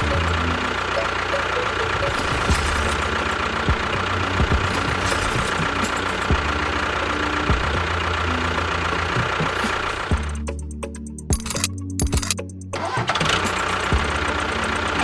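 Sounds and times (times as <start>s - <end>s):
steady tones: 0.0s - 12.6s
diesel engine idling with knocks: 0.0s - 15.0s
spaced clicks: 11.3s - 14.2s.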